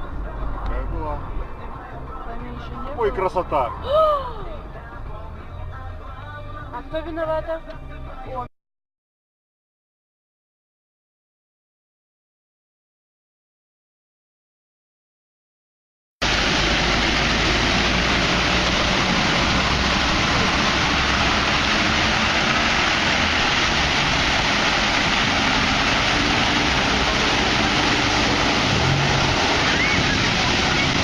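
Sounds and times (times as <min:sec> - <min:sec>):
car road and wind noise: 0:00.0 - 0:08.4, 0:16.2 - 0:31.0.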